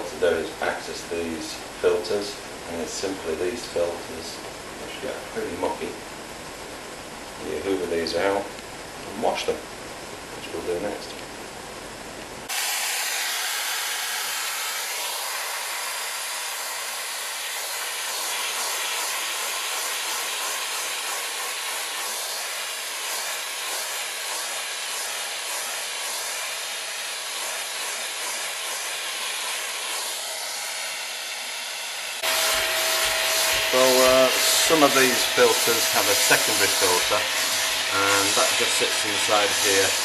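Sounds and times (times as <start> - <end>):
vacuum cleaner running: 12.5 - 40.0.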